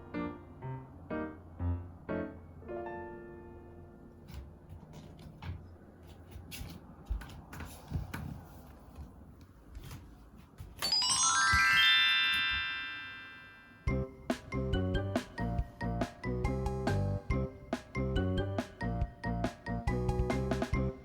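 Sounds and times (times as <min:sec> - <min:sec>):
faint room noise: 0:00.0 - 0:14.6
bell-like chime run: 0:10.8 - 0:14.1.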